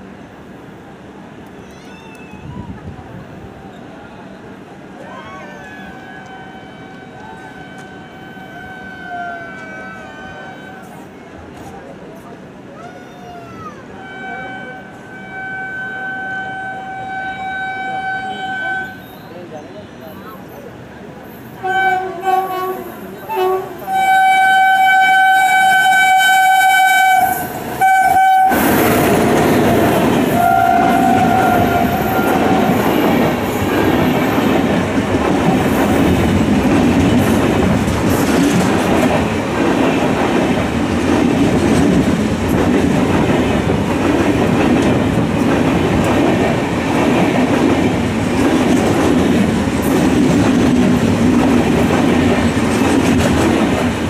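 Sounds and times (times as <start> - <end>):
train passing on rails: 0.0 - 54.0
locomotive horn toots: 6.0 - 11.1, 14.0 - 19.3, 21.6 - 29.4, 30.2 - 33.1.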